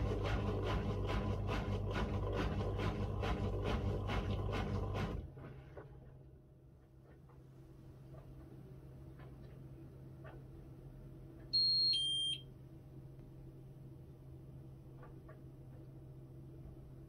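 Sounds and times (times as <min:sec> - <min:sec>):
washing machine drum swishing: 0:00.0 - 0:10.6.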